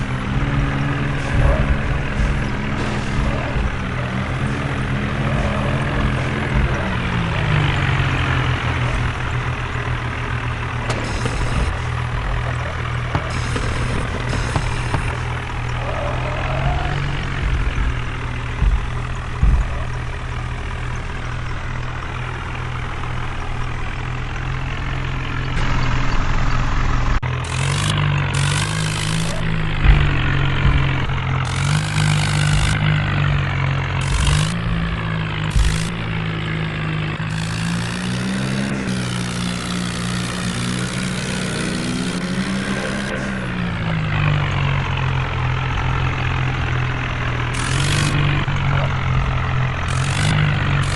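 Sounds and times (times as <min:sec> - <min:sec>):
diesel tractor engine revving: 0:00.0 - 0:50.9
sharp knocks: 0:16.7 - 0:21.4, 0:28.5 - 0:33.2, 0:34.0 - 0:36.2.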